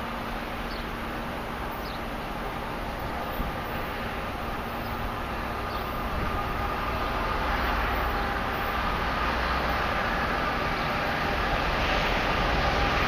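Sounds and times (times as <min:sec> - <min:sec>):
freight train rumbling: 0:00.0 - 0:13.0.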